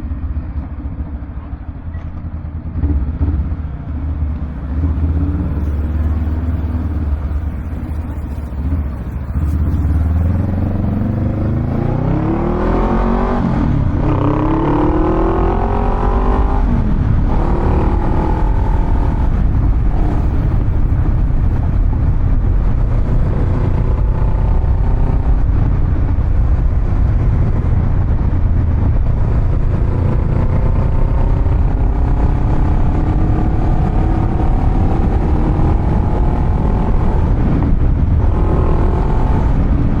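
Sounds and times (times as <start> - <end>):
motorcycle engine accelerating: 0.0 - 40.0.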